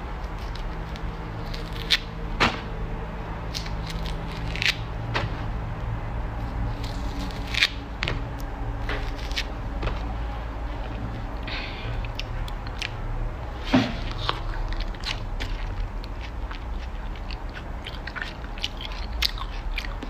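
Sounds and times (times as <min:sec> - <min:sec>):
steady low hum: 0:00.0 - 0:20.0
chewing crunchy food: 0:03.5 - 0:05.1, 0:06.4 - 0:20.0.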